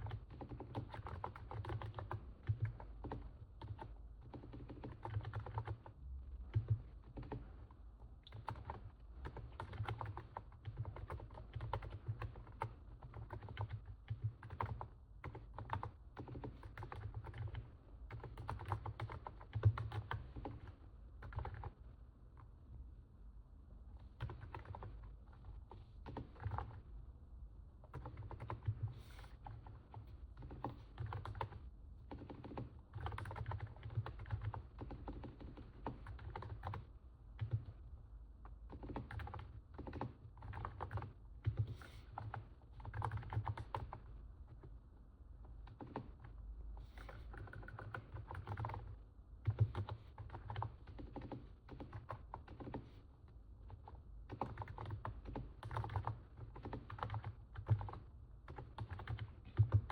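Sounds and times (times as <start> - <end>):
keyboard typing: 0.0 - 5.9, 6.5 - 7.6, 8.2 - 21.8, 24.1 - 26.8, 27.8 - 37.8, 38.5 - 44.6, 45.6 - 59.9.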